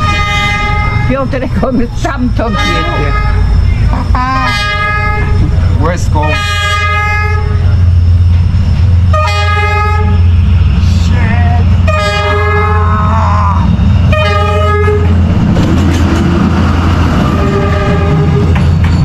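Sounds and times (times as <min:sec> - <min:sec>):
train horn blasts: 0:00.0 - 0:01.4, 0:02.4 - 0:03.6, 0:04.4 - 0:05.5, 0:06.1 - 0:07.6, 0:09.1 - 0:15.2, 0:17.2 - 0:18.6
locomotive rumbling: 0:00.0 - 0:19.0
train rushing past: 0:00.0 - 0:19.0.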